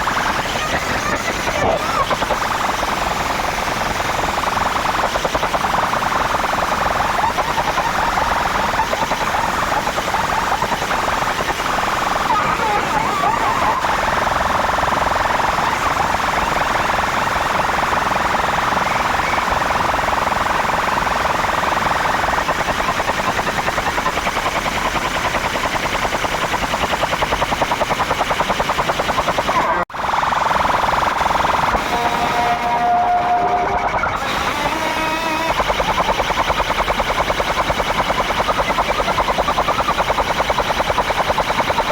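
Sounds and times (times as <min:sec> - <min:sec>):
distorted sound system music: 0:00.0 - 0:22.2, 0:28.9 - 0:41.9
warbling siren-like horn: 0:29.5 - 0:41.9.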